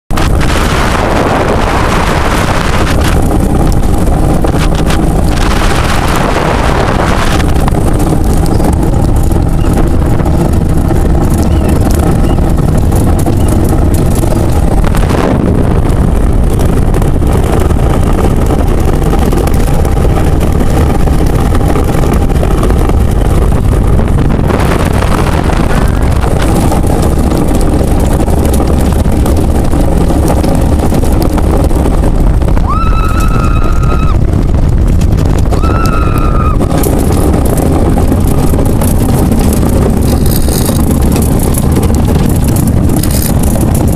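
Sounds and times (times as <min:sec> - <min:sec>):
ice boat low rumble: 0:00.0 - 0:43.9
wind buffeting microphone: 0:00.1 - 0:43.9.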